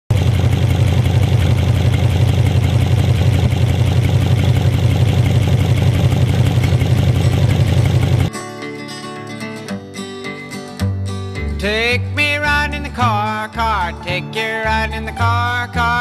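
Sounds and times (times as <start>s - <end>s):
car engine idling: 0.1s - 8.3s.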